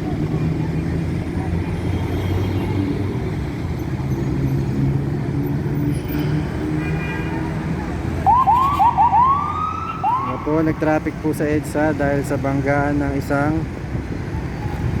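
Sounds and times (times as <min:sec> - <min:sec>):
road traffic rumble: 0:00.0 - 0:15.0
emergency siren: 0:08.2 - 0:10.7.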